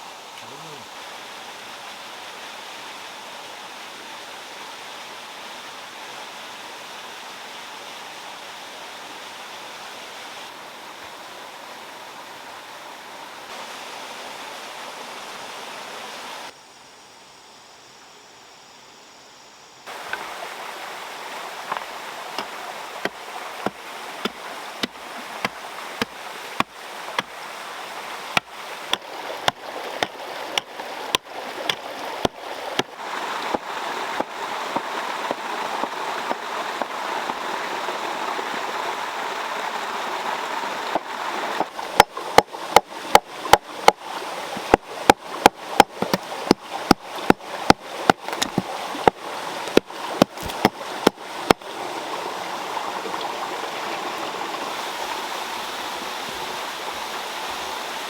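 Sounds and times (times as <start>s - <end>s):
flowing water rushing: 0.0s - 16.5s, 19.9s - 58.0s
tool striking knocks: 45.8s - 51.6s.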